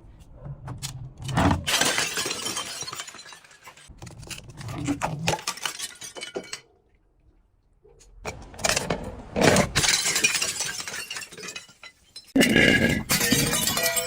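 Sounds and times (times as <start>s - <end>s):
glass crunching: 1.7s - 6.7s, 9.7s - 14.0s.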